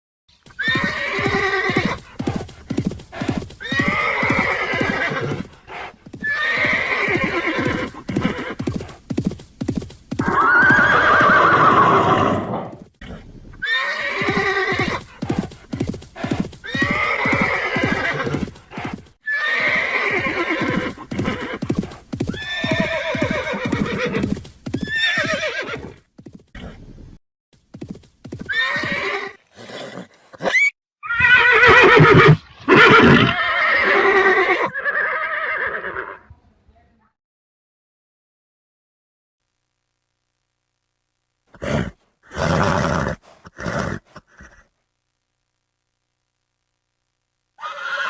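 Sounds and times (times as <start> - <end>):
hooves clip-clopping: 0.3 - 11.8, 14.0 - 19.2, 20.2 - 26.5, 27.6 - 29.1
horse whinnying: 0.5 - 8.9, 10.2 - 26.0, 28.4 - 36.3, 41.6 - 44.7, 47.6 - 48.0.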